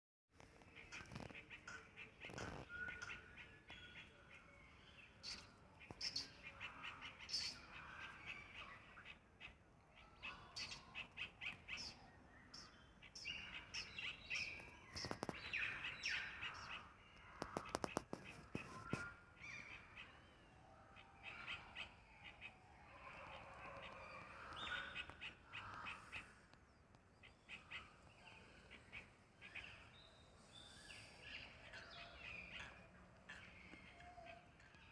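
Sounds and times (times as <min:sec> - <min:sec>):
birds chirping and calling: 0:00.5 - 0:34.9
crow-like caws: 0:17.3 - 0:17.9, 0:23.0 - 0:26.4.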